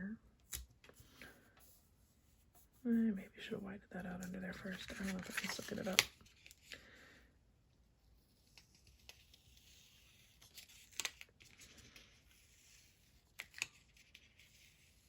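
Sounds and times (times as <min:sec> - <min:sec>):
paper rustling: 0:04.1 - 0:06.7.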